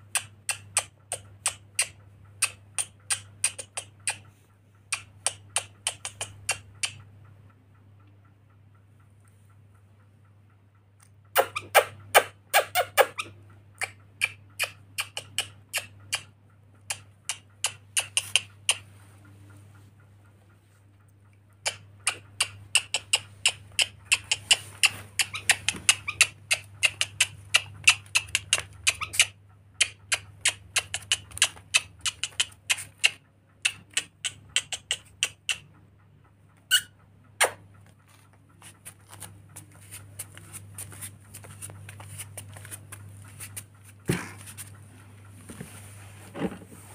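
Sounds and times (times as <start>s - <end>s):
bird clicks and squeaks: 0.1s - 8.2s, 11.0s - 19.0s, 21.2s - 43.8s
steady low hum: 13.3s - 46.9s.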